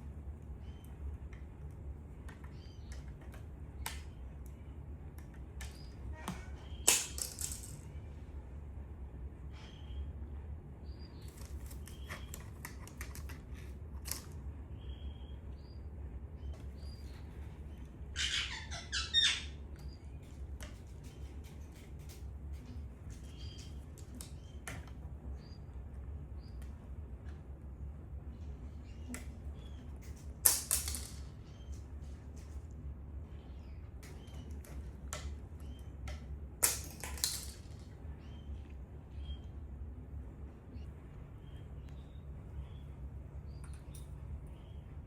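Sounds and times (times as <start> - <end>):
small clicks and taps: 0.8 - 5.9, 11.3 - 14.4
parrot chirping: 18.1 - 20.0.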